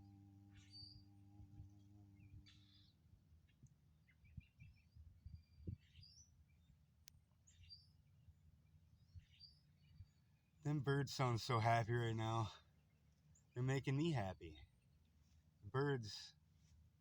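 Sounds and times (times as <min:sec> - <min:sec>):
birds singing faintly: 0:00.0 - 0:17.0
man chanting om: 0:10.7 - 0:12.6, 0:13.6 - 0:14.6, 0:15.7 - 0:16.3.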